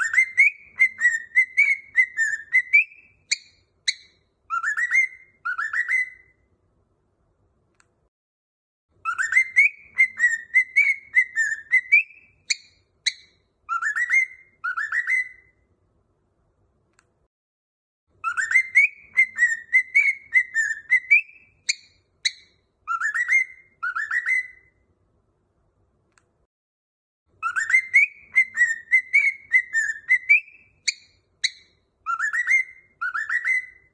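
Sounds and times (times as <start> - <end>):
cockatiel whistling: 0.0 - 6.4, 9.0 - 15.6, 18.2 - 24.8, 27.4 - 33.9.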